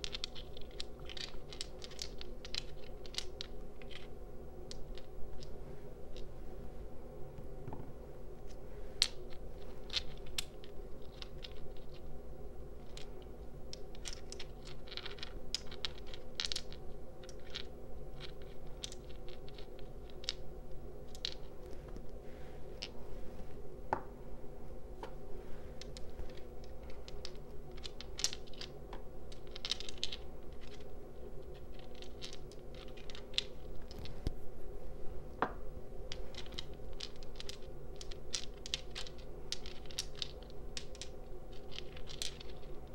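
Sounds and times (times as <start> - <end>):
stones clicking together: 0.0 - 4.1, 13.7 - 20.4, 25.8 - 34.3, 35.4 - 42.8
steady low hum: 0.0 - 42.9.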